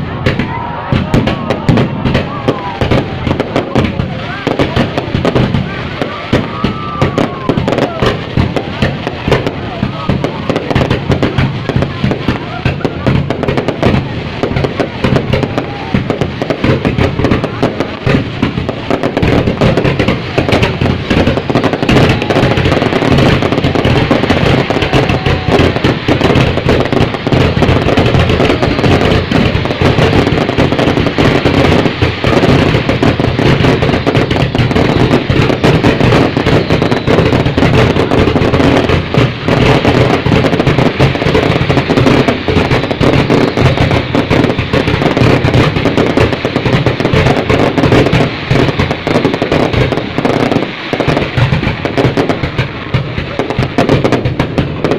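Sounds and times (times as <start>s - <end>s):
fireworks bangs and crackling: 0.0s - 54.9s.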